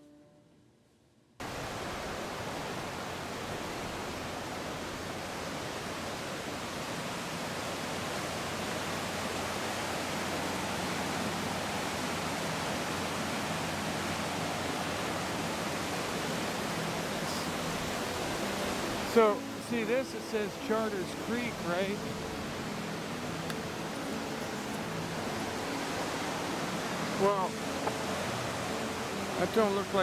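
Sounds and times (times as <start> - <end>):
creek water rushing: 1.4 - 30.0.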